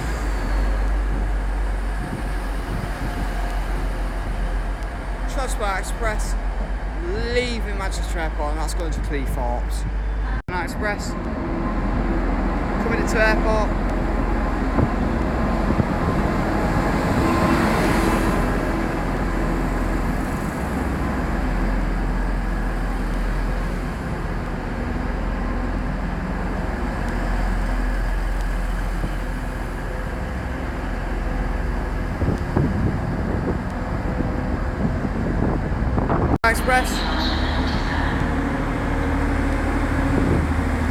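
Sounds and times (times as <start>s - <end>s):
diesel train engine and running gear: 0.0s - 40.9s
low hum: 0.0s - 40.9s.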